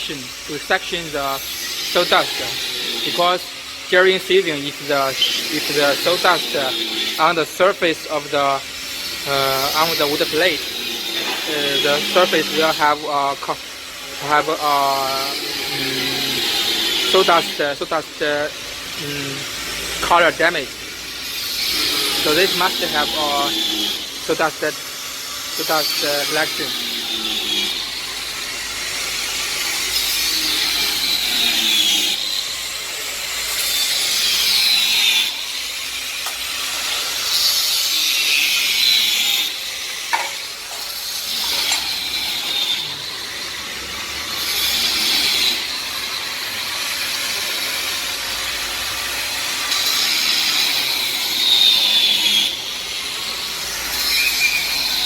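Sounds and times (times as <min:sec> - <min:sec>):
hissing wood cut with whine: 0:00.0 - 0:55.0
planing machine running: 0:00.0 - 0:55.0.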